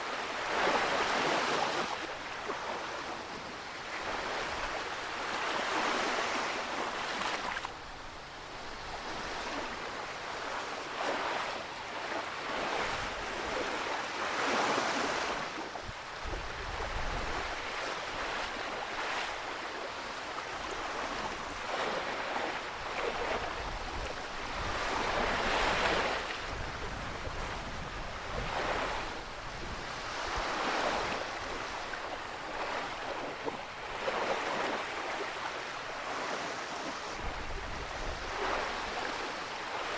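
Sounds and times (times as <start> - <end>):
ocean waves breaking: 0.0 - 39.9
wind buffeting microphone: 15.8 - 18.3, 22.8 - 31.9, 37.1 - 39.3.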